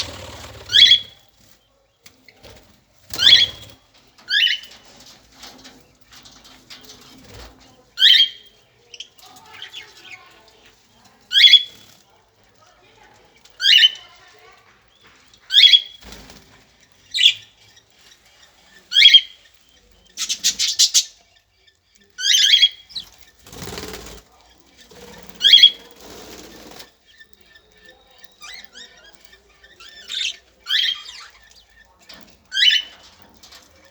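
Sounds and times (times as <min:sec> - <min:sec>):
birds chirping sharply: 0:00.0 - 0:04.9, 0:14.8 - 0:33.6.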